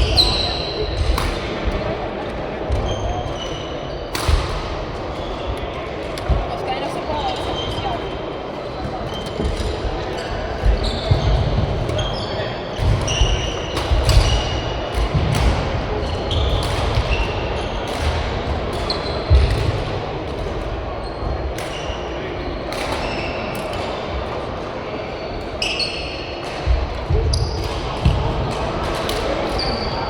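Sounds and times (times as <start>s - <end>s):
shoes squeaking on court floor: 2.6s - 4.3s, 5.0s - 15.2s, 15.9s - 19.7s, 21.0s - 24.0s, 25.1s - 26.4s
racket hitting shuttlecock: 4.1s - 5.2s, 12.8s - 20.5s.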